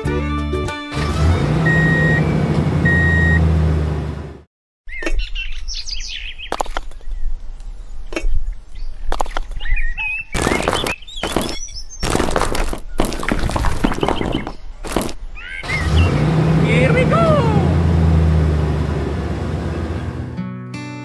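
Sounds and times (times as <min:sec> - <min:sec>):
bird chirps: 0:04.9 - 0:12.1, 0:13.7 - 0:16.2.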